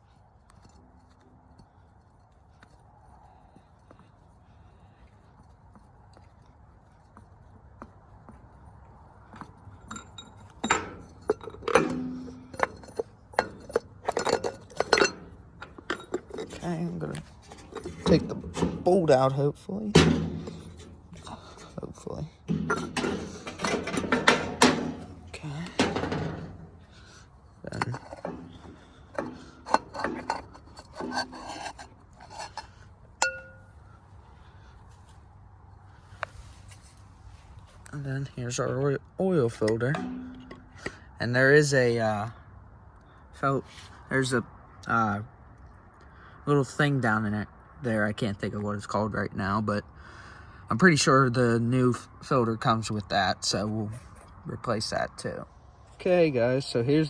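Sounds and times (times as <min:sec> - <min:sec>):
metal hand tools clinking: 0:09.2 - 0:19.0, 0:20.0 - 0:21.7, 0:22.5 - 0:33.7
metal parts scraping: 0:09.3 - 0:19.2, 0:20.0 - 0:21.8, 0:22.4 - 0:33.7
sharp metallic clink: 0:33.2 - 0:33.7.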